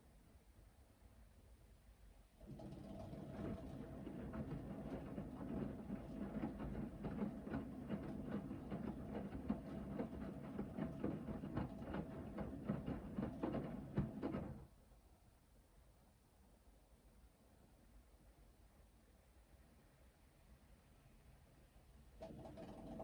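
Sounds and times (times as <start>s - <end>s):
washing machine motor whine: 2.8s - 14.5s
washing machine drum tumbling: 3.0s - 14.6s.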